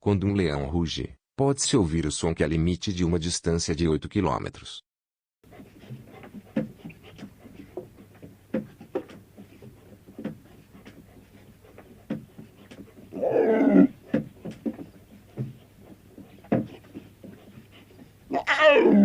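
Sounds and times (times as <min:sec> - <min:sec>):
lion grunting: 0:05.5 - 0:19.0
lion call: 0:13.0 - 0:14.2, 0:18.3 - 0:19.0.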